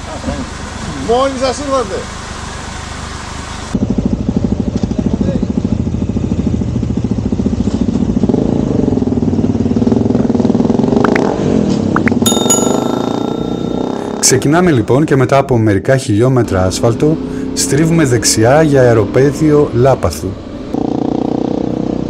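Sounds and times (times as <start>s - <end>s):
motorcycle engine running: 3.8s - 11.3s, 20.7s - 22.0s
short electronic chime: 12.0s - 15.0s.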